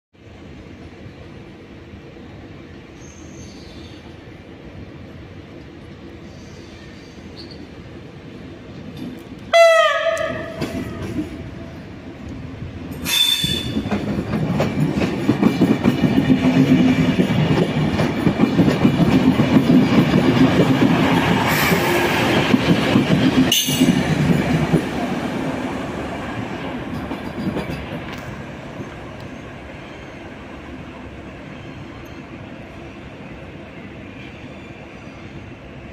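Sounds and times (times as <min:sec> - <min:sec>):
train wheel squeal: 0:06.3 - 0:07.8, 0:13.0 - 0:14.2, 0:23.3 - 0:24.4
train wheels clattering over rail joints: 0:10.2 - 0:11.6, 0:12.9 - 0:25.3, 0:26.4 - 0:28.9.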